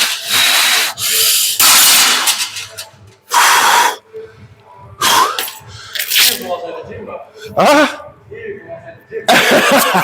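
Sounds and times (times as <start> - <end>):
loud hissing breaths: 0.2 - 1.6.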